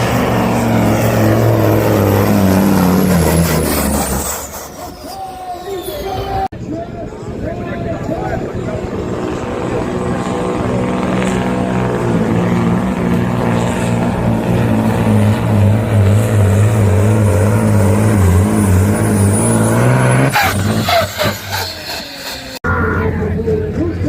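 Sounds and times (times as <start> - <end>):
truck engine running hard: 0.0 - 24.0.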